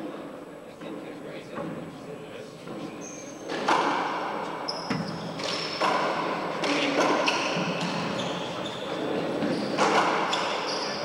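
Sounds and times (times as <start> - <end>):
sneakers squeaking on floor: 2.7 - 11.0.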